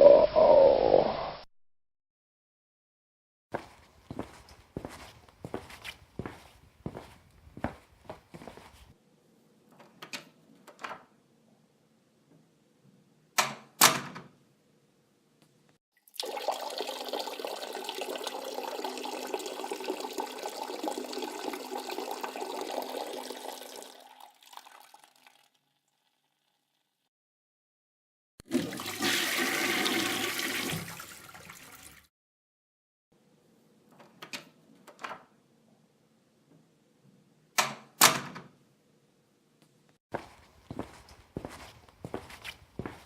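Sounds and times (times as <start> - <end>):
liquid splashing into toilet water: 16.0 - 26.2, 28.4 - 32.1.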